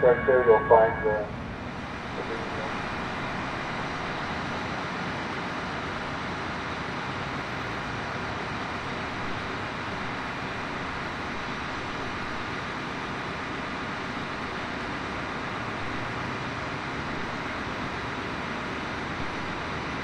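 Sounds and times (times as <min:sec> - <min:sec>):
train rumble: 0:00.0 - 0:06.5.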